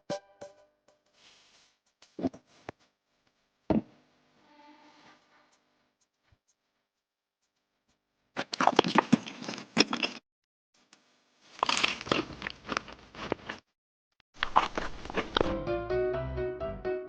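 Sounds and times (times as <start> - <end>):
crisp crunching: 11.6 - 13.6, 14.4 - 15.5.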